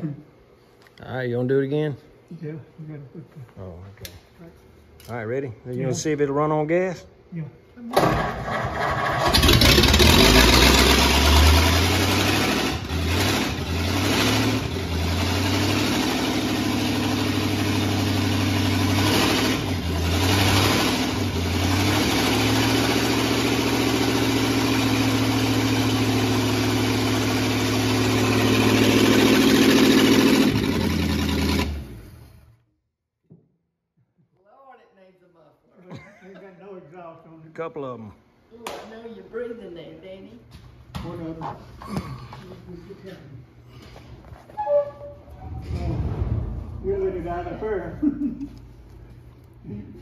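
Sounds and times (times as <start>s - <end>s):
loud open car engine running: 9.2s - 32.4s.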